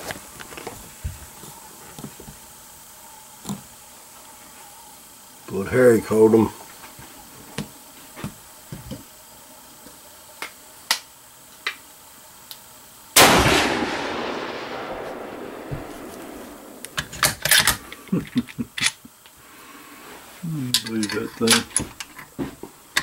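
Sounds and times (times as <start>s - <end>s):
rifle shot echoing: 13.2s - 17.8s.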